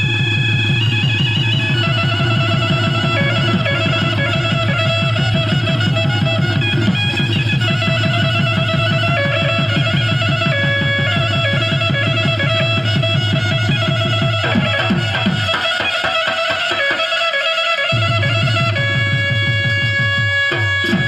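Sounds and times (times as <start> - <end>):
fast drum beat: 0.0 - 17.0
sustained melody line: 0.9 - 15.6.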